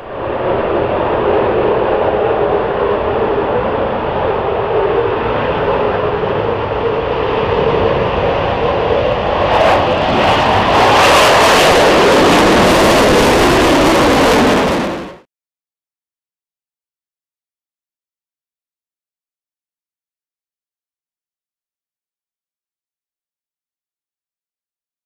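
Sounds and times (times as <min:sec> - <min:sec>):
jet engines roaring on takeoff: 0:00.0 - 0:15.3.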